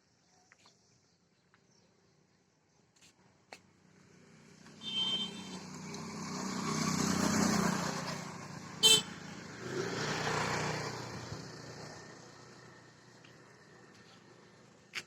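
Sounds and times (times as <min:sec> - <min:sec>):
road traffic passing: 0:03.0 - 0:15.0
car horn honking: 0:04.8 - 0:05.7, 0:08.8 - 0:09.2.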